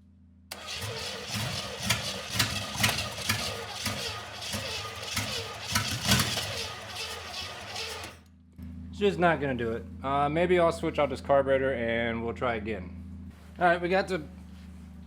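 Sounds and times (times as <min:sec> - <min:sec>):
engine cranking and popping: 0:00.5 - 0:08.2.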